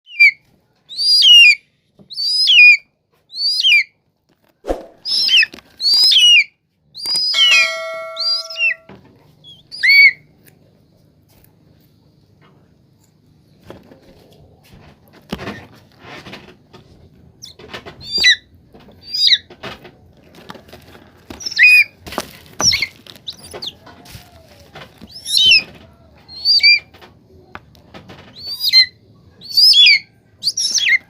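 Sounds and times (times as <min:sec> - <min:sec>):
eagle chick shrill calls: 0:00.1 - 0:03.9, 0:05.0 - 0:08.9, 0:09.5 - 0:10.2, 0:17.4 - 0:18.4, 0:19.0 - 0:19.4, 0:21.4 - 0:21.9, 0:22.6 - 0:23.8, 0:25.1 - 0:25.7, 0:26.3 - 0:26.9, 0:28.4 - 0:31.0
steady tone: 0:07.4 - 0:08.9.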